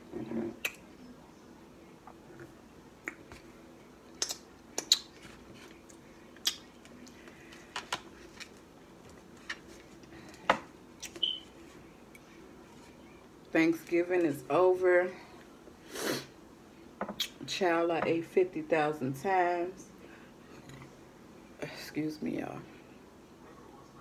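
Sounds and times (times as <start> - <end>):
wet mouth clicks: 0.6 - 0.8, 4.2 - 5.1, 6.4 - 6.7.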